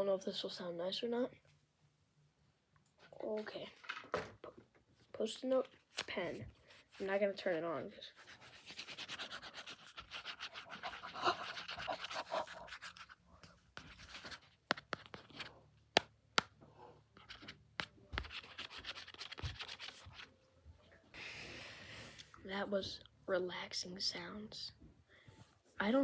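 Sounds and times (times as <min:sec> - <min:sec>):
pen scribbling on paper: 0:08.1 - 0:13.2.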